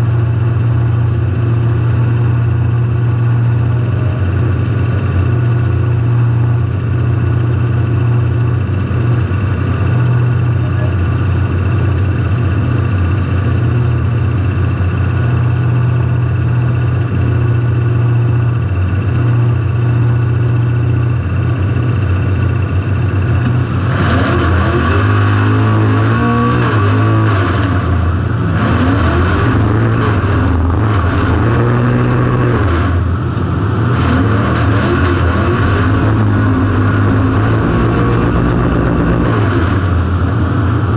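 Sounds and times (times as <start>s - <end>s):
car engine revving: 22.9s - 40.9s.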